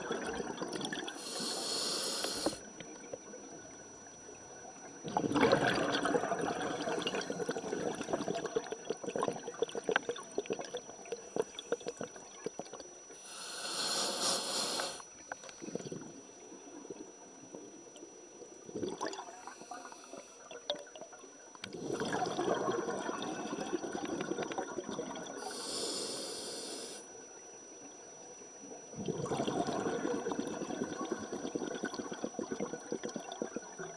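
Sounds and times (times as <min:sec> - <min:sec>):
underwater bubbling: 0:00.0 - 0:27.0, 0:28.6 - 0:33.9
short hissing bursts: 0:01.2 - 0:02.6, 0:13.2 - 0:15.0, 0:25.4 - 0:27.0.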